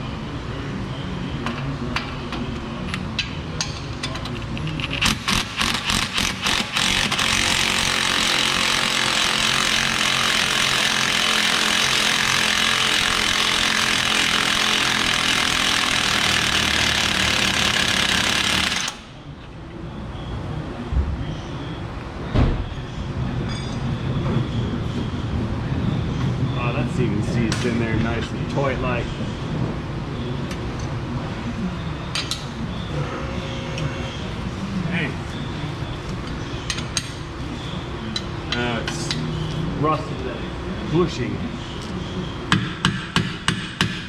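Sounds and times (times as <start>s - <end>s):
impact wrench hammering: 5.0s - 19.2s, 42.5s - 44.0s.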